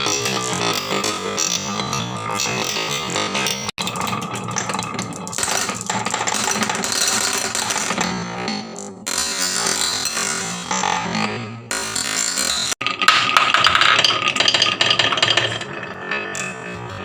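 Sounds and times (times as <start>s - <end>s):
marbles clattering on wooden track: 3.6s - 10.5s, 11.7s - 17.0s.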